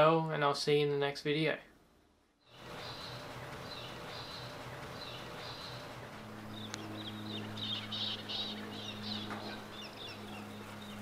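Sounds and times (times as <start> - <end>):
steady low hum: 1.6 - 11.0
small birds chirping: 2.4 - 11.0.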